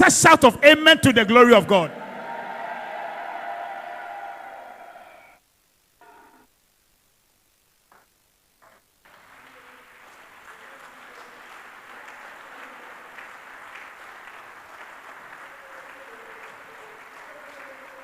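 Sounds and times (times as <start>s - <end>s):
faint congregation applause: 1.7s - 5.4s, 9.0s - 18.0s.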